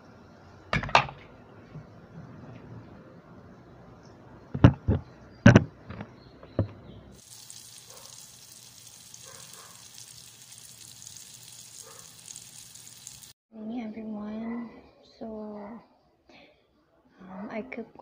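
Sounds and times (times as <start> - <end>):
sharp knocks and clatters: 0.7 - 1.9, 4.6 - 6.8
omelette sizzling in oil: 7.2 - 13.4.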